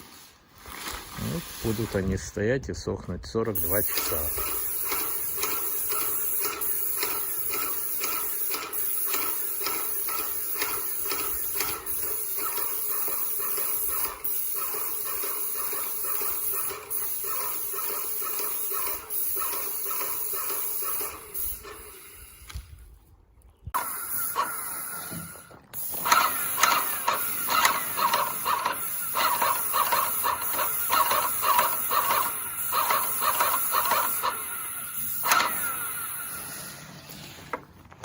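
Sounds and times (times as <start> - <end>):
pump ticks: 3.6 - 22.7, 25.7 - 36.1
paint sprayer hissing: 3.6 - 22.8, 23.8 - 37.6.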